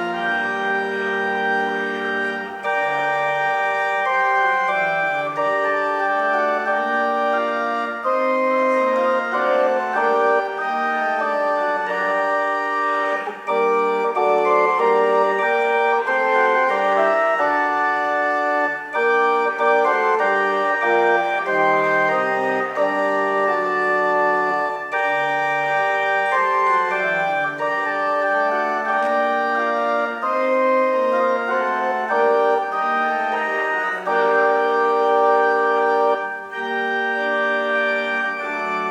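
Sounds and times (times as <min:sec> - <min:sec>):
church organ chords: 0:00.0 - 0:38.9.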